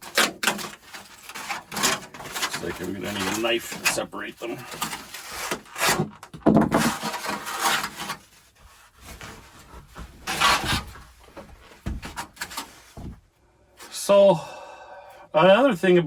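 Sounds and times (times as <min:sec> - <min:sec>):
knife scraping through plastic: 0:00.0 - 0:11.1.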